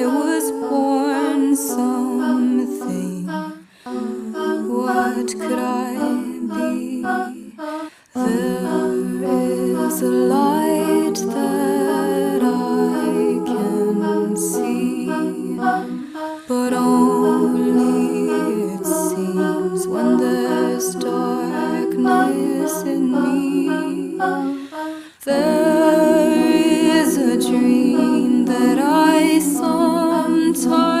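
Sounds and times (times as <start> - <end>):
a cappella humming and singing: 0.0 - 31.0.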